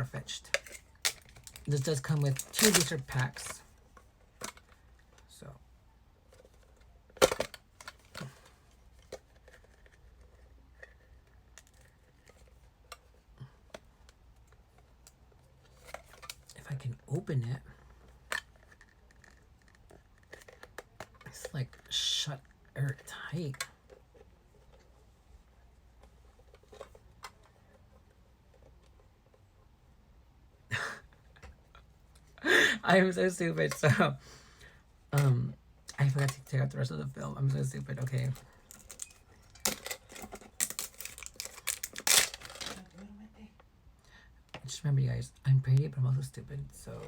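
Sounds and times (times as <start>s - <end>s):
plastic film rustling: 0.5s - 3.7s, 38.0s - 43.1s.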